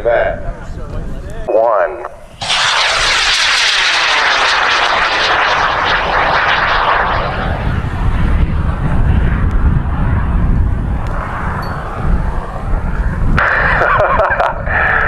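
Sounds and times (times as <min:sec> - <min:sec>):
rocket motor roaring: 0:02.1 - 0:15.0.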